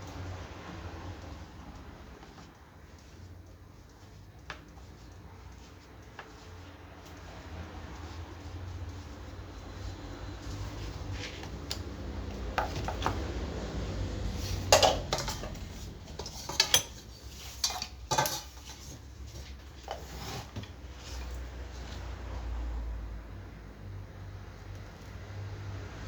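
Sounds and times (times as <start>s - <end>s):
metal tools clinking and clattering: 14.6s - 18.8s.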